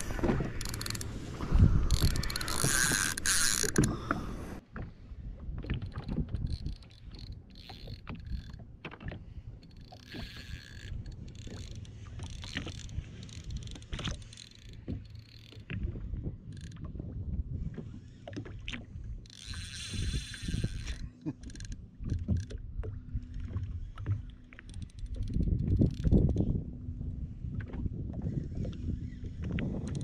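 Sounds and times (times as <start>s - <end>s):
fishing reel ratcheting buzz: 0.0s - 4.2s, 6.4s - 8.6s, 9.6s - 15.6s, 19.2s - 22.6s, 24.6s - 26.4s
fishing gear clicks and knocks: 0.0s - 4.9s, 5.6s - 16.9s, 19.2s - 22.6s, 23.2s - 26.5s.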